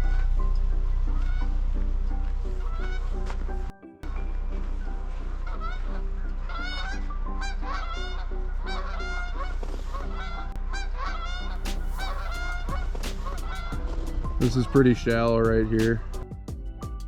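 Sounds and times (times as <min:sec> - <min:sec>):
steady low hum: 0:00.0 - 0:17.0
geese honking: 0:01.2 - 0:01.5, 0:05.4 - 0:16.2.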